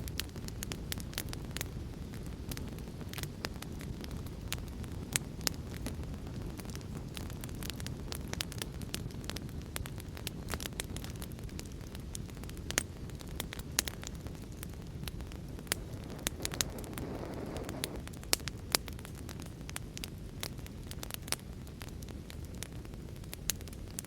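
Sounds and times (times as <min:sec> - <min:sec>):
wood fire crackling and popping: 0:00.0 - 0:24.0
rain hiss: 0:15.6 - 0:18.1.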